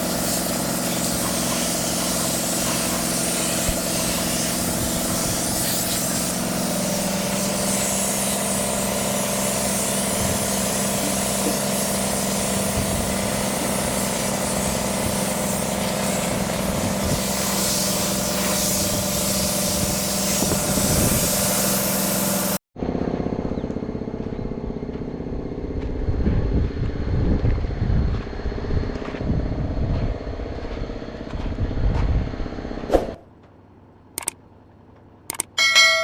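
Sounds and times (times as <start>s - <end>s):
hissing machinery hum: 0.0s - 22.6s
vehicle engine running unevenly: 0.0s - 35.3s
clicks: 34.2s - 34.4s, 35.0s - 35.6s.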